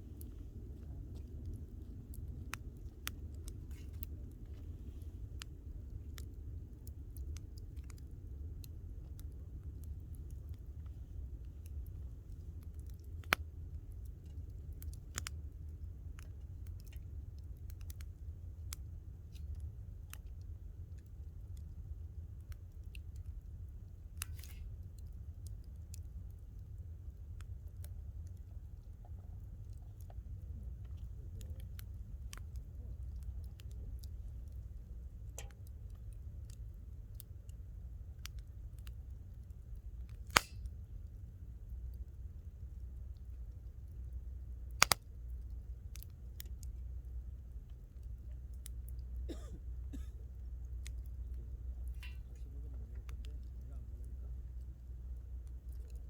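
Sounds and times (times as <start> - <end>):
low rumble: 0.0 - 22.4
campfire crackling and popping: 0.0 - 56.0
low steady rumble: 0.0 - 56.0.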